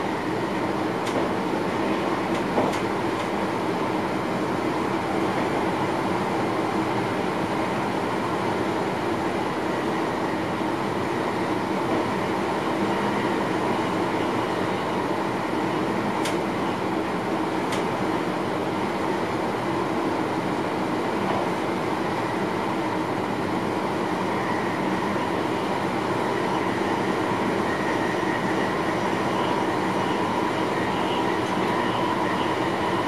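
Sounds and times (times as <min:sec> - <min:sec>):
train wheels rumbling on rails: 0:00.0 - 0:19.2.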